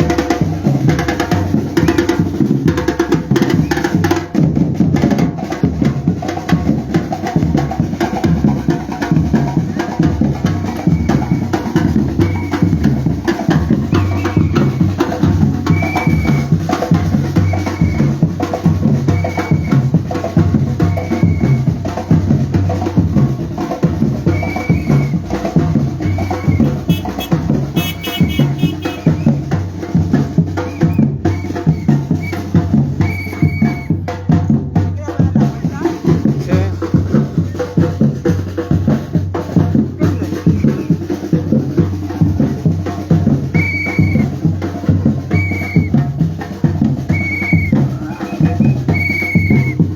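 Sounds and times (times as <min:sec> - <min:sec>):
percussion group drumming: 0:00.0 - 0:49.9.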